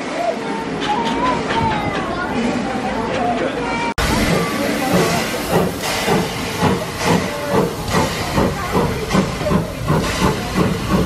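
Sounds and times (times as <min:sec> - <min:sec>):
steam hissing: 0:04.0 - 0:11.0
steam locomotive exhaust chuffing: 0:04.0 - 0:11.0.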